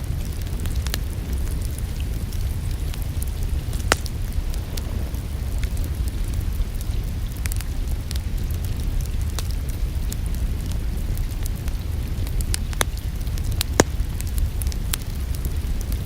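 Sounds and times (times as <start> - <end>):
low rumble: 0.0 - 8.6
rain hiss: 0.0 - 16.0
wood fire crackling and popping: 0.0 - 16.0.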